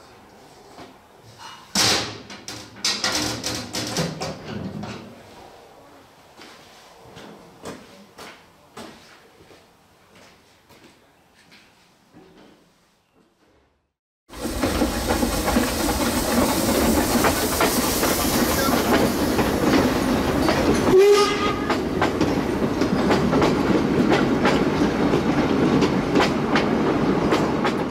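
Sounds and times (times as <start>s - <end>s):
train rumble: 14.3s - 27.9s
wheels clacking over rail joints: 14.3s - 27.9s
train horn blast: 20.9s - 21.8s.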